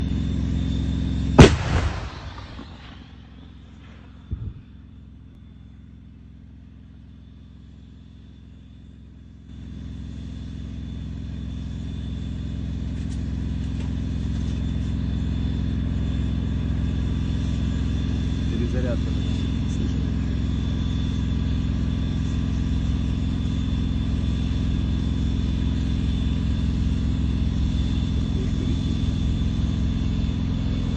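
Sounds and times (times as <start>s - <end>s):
tank diesel engine drone: 0.0s - 30.9s
smaller bang: 1.4s - 3.2s
tank gun firing blast: 1.4s - 4.7s.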